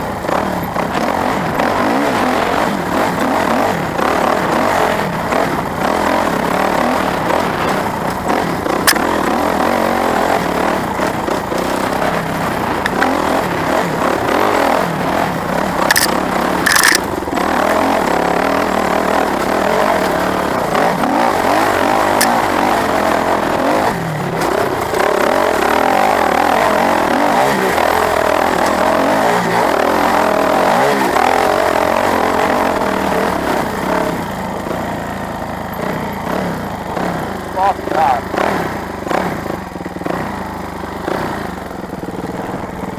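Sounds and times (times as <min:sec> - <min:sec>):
motorcycle engine running: 0:00.0 - 0:42.9
sharp clicks and knocks: 0:07.6 - 0:09.3, 0:12.7 - 0:13.2, 0:15.8 - 0:17.1.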